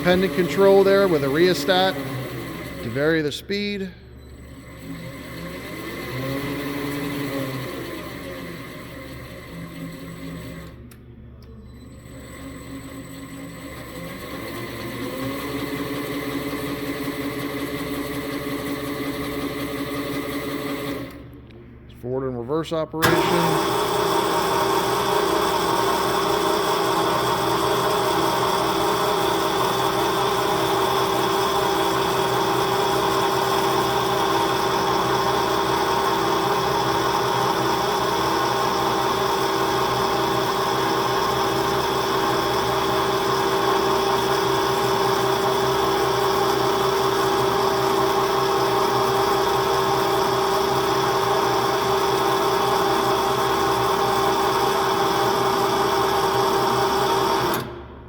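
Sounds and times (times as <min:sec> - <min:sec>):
electric drive whine: 0:23.0 - 0:58.0.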